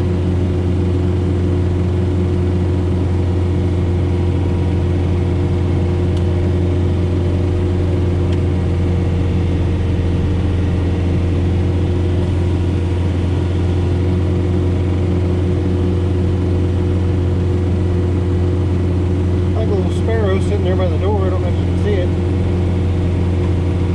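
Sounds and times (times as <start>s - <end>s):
tractor diesel engine droning: 0.0s - 23.9s.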